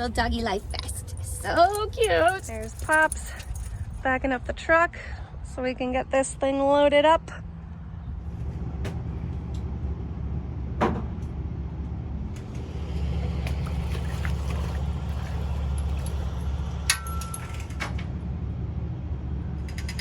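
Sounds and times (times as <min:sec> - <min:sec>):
engine idling: 0:07.4 - 0:20.0.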